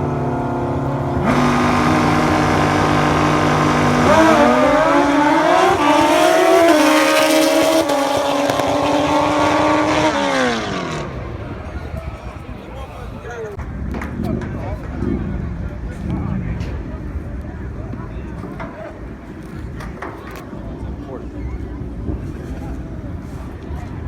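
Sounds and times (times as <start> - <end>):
racing motorcycle engines: 0.0 - 13.2.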